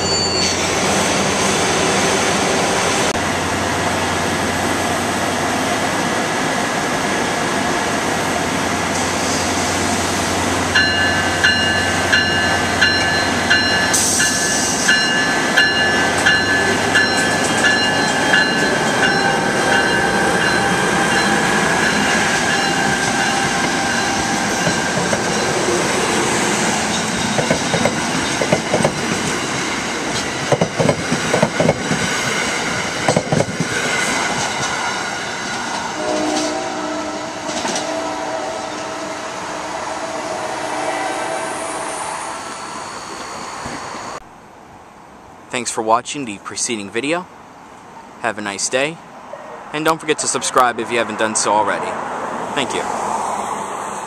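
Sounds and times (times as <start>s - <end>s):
crossing warning bell: 0.0s - 0.8s, 10.7s - 25.7s, 26.8s - 28.8s
train wheels clicking: 26.8s - 34.8s
train horn chord: 36.0s - 41.6s.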